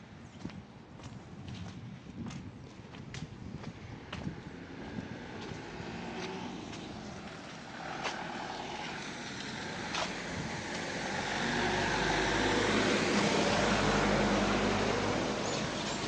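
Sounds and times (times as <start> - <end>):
footsteps on pavement: 0.2 - 11.4
car approaching: 4.4 - 16.0.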